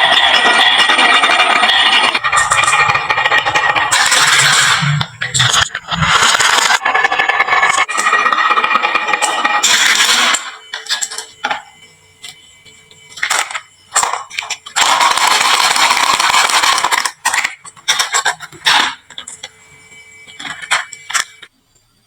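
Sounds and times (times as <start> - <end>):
marbles clicking and clacking: 0.0 - 11.7
marbles rolling down wooden slope: 0.1 - 11.3, 13.2 - 19.0.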